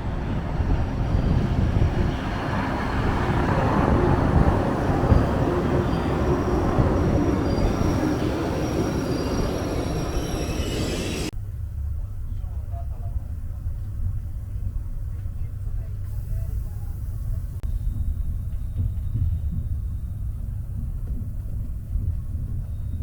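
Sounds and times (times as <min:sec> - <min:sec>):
train rumbling on rails: 0:00.0 - 0:23.0
high-pitched wheel squeal: 0:02.7 - 0:11.3.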